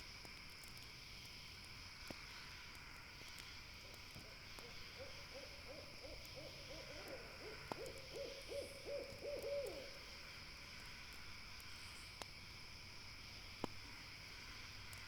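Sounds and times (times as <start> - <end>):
campfire crackling and popping: 0.0 - 4.9, 10.4 - 15.0
steady night hiss: 0.0 - 15.0
owl hooting: 4.7 - 10.0.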